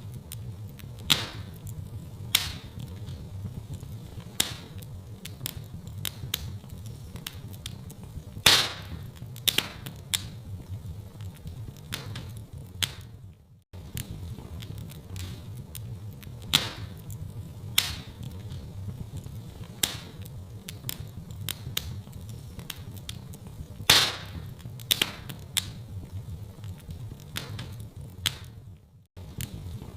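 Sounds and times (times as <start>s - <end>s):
wood fire crackling: 0.0s - 29.9s
sharp loud fire pops: 1.0s - 1.6s, 2.3s - 2.8s, 4.3s - 4.8s, 8.4s - 10.4s, 16.5s - 17.0s, 17.7s - 18.2s, 19.8s - 20.2s, 23.8s - 25.8s, 27.4s - 28.6s.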